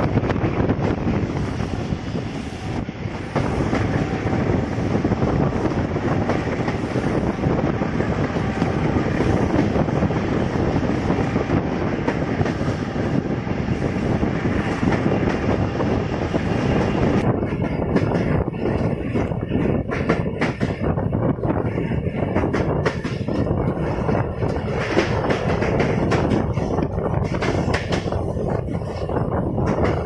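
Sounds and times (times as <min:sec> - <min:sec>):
train wheels clattering over rails: 0:00.0 - 0:30.0.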